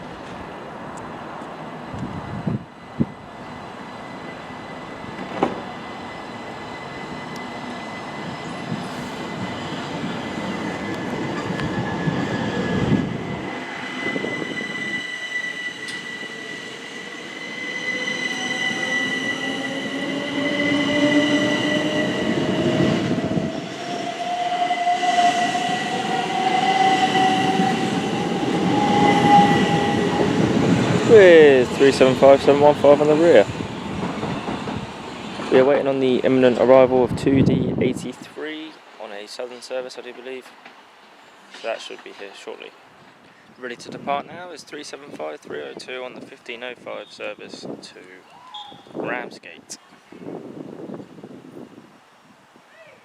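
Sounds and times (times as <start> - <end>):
high steady train squeal: 0.0 - 37.6, 40.3 - 46.3, 46.9 - 49.0
train motor whine rising: 3.9 - 34.6.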